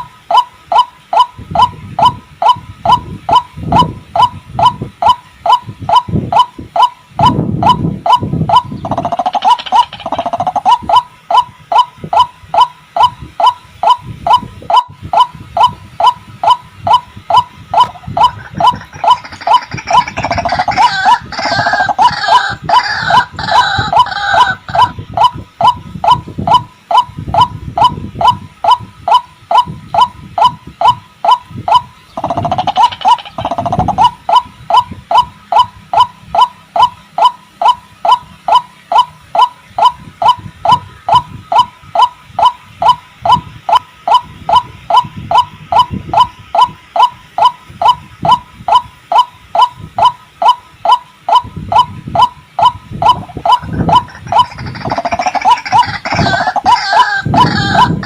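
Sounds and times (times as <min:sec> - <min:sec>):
waterhen calling: 0:00.0 - 0:58.0
fast chattering bird notes: 0:00.7 - 0:37.7, 0:49.1 - 0:58.0.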